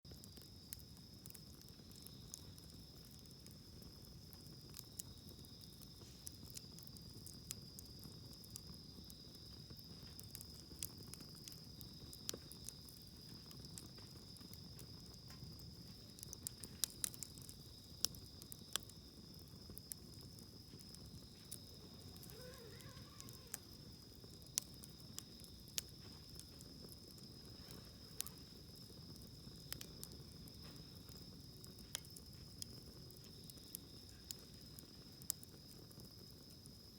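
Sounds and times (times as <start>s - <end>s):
campfire crackling and popping: 0.1s - 36.9s
high-pitched insect trill: 20.7s - 31.1s.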